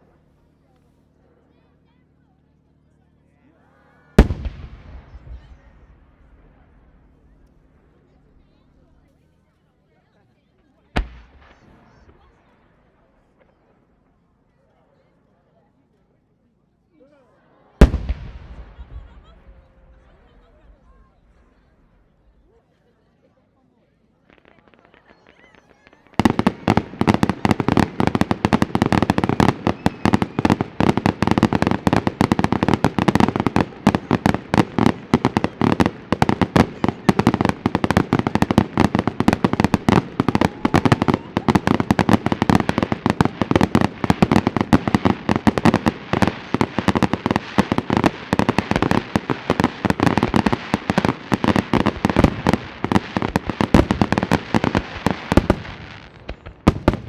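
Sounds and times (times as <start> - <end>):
fireworks bursting and crackling: 4.0 - 9.1, 11.0 - 13.8, 17.8 - 22.0, 24.3 - 57.0.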